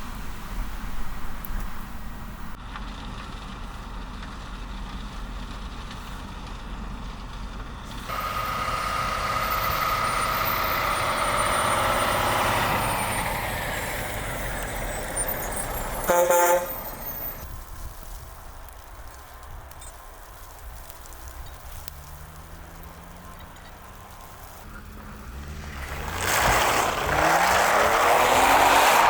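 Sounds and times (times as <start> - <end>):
large truck passing: 0.0 - 17.9, 21.6 - 29.0
horn toot: 14.6 - 17.5.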